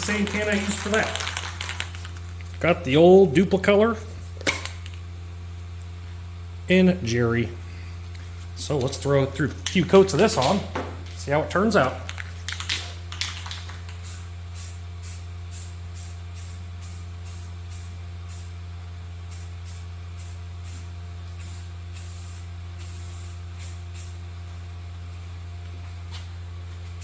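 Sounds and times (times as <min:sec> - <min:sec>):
spray paint can hissing: 0:00.0 - 0:02.3, 0:12.0 - 0:18.5, 0:19.3 - 0:24.2
steady low hum: 0:00.0 - 0:27.0.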